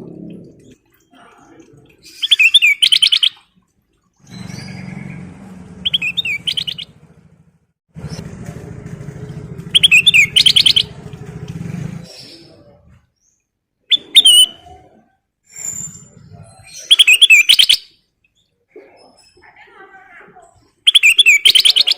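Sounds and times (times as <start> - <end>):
bulbul whistled song: 2.1 - 3.4, 5.8 - 7.0, 9.7 - 11.0, 13.9 - 14.8, 16.8 - 18.0, 20.9 - 21.9
low motor hum: 4.2 - 13.0.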